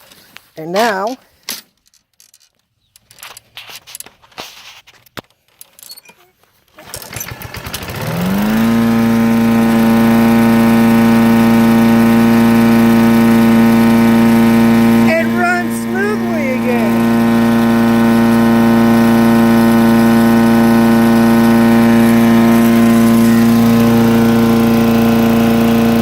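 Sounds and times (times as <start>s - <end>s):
lawn mower engine running: 6.7s - 26.0s.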